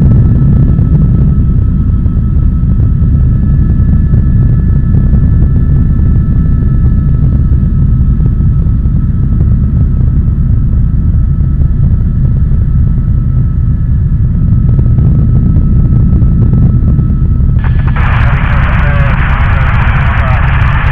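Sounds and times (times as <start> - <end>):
helicopter rotor and engine rumble: 0.0 - 20.9
high-pitched whines: 17.6 - 20.9.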